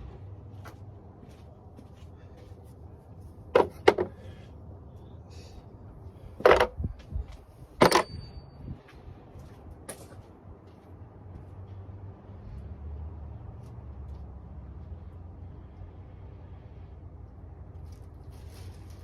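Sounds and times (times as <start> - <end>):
tools and car parts clattering: 3.5 - 4.3, 6.4 - 7.0, 7.8 - 8.7.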